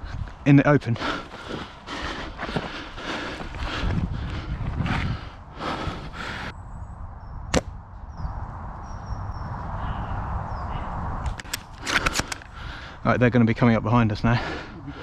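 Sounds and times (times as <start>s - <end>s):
airsoft rifle shot: 7.5s - 7.8s.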